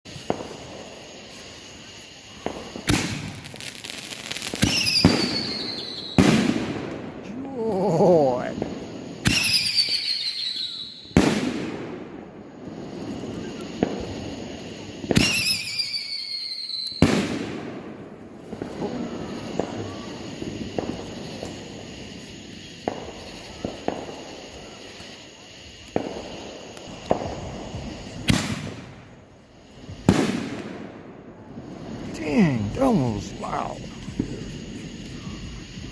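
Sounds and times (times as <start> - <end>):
firework booms: 0.1 - 10.1, 10.7 - 15.8, 16.9 - 35.9
firework crackling: 0.1 - 35.9
small firework bang: 2.4 - 3.8, 4.4 - 7.0, 17.0 - 21.6, 22.8 - 25.2, 25.9 - 29.0, 29.9 - 31.1
high falling whistles: 3.5 - 6.3, 8.8 - 11.2, 12.7 - 17.2.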